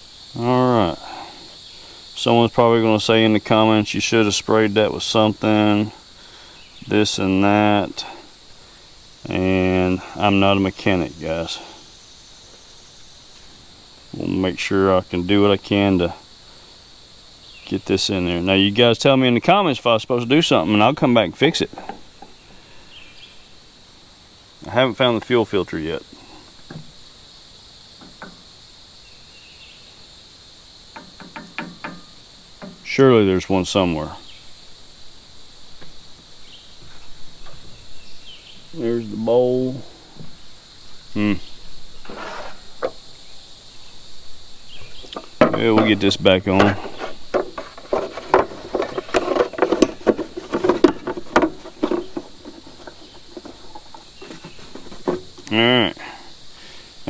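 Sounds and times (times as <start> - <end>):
insects droning: 0.0 - 57.0
light clicks and knocks: 30.9 - 32.9
engine parts clicking and rattling: 45.2 - 55.5.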